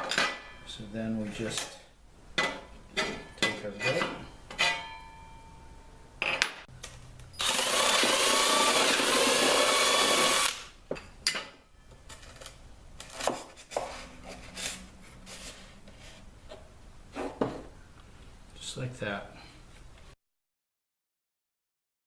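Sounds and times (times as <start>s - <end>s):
power drill boring: 7.4s - 10.6s.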